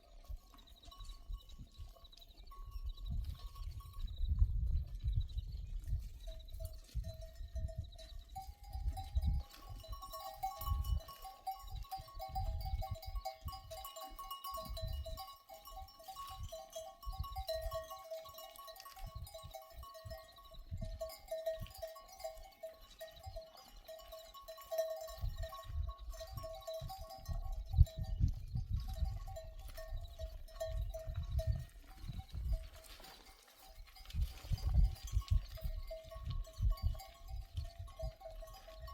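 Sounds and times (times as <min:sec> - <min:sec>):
wind rumbling on microphone: 0:00.0 - 0:38.9.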